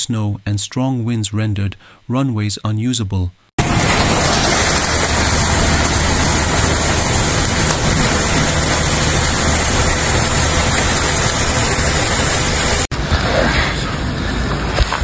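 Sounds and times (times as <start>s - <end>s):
low hum: 3.6s - 14.6s
rougher rushing noise: 3.6s - 14.8s
loud steady rushing noise: 3.6s - 15.0s.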